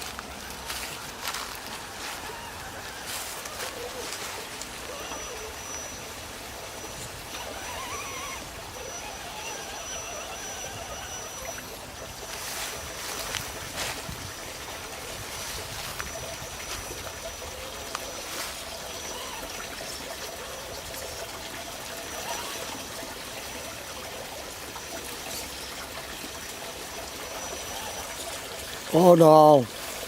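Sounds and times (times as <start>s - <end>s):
faint high whine: 0.0s - 23.7s
water trickling: 0.0s - 30.0s.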